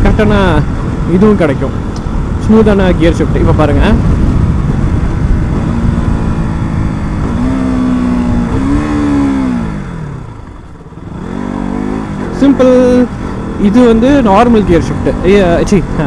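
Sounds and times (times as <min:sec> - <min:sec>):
wind rushing over microphone: 0:00.0 - 0:16.0
motorcycle engine downshifting: 0:04.0 - 0:16.0.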